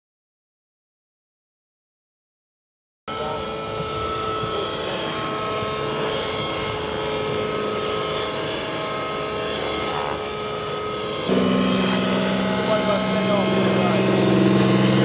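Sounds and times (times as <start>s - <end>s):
model helicopter whine: 3.1s - 15.0s.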